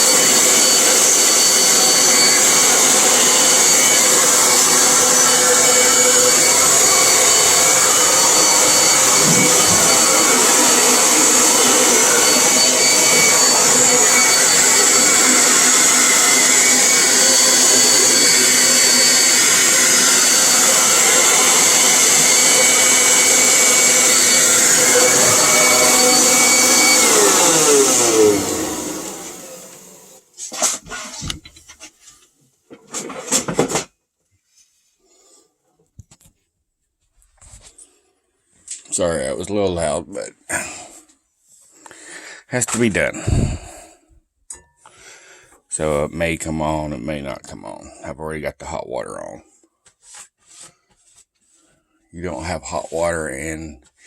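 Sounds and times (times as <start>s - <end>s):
leaf blower roaring: 0.0s - 30.2s, 43.2s - 43.9s.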